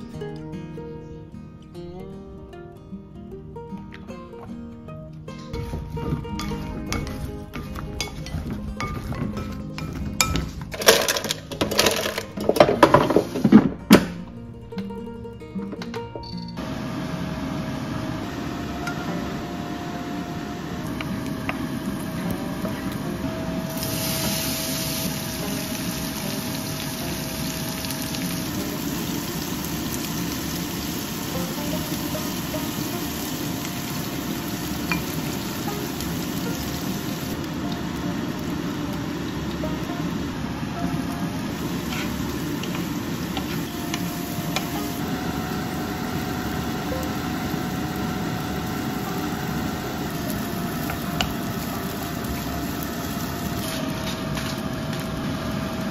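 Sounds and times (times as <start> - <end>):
meat sizzling in a pan: 23.6 - 53.9
chopsticks tapping a pan: 30.0 - 38.6, 41.5 - 46.2, 48.9 - 52.5.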